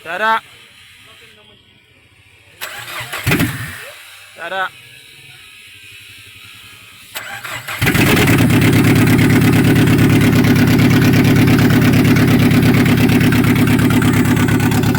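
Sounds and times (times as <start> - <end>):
car engine running: 0.6 - 14.9.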